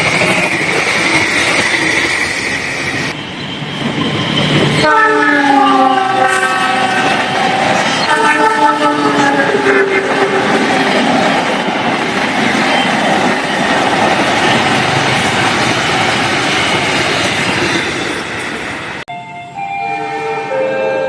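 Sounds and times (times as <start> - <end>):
train passing at speed: 0.0 - 21.0
train horn: 4.8 - 7.4, 8.0 - 10.5.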